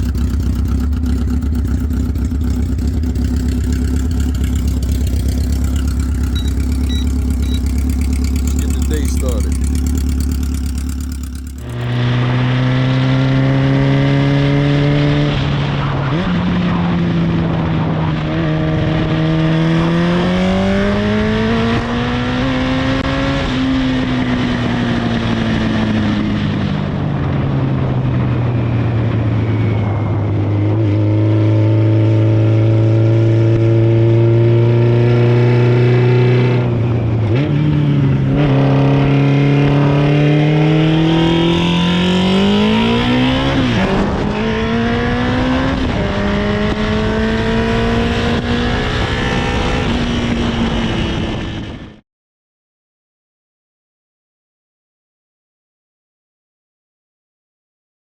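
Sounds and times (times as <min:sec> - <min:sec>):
motorcycle engine idling: 0:00.0 - 0:11.9.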